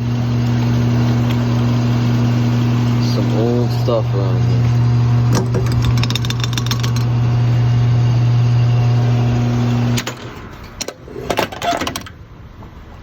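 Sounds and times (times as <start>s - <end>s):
car engine humming: 0.0s - 10.6s
clicks and knocks: 5.3s - 7.2s.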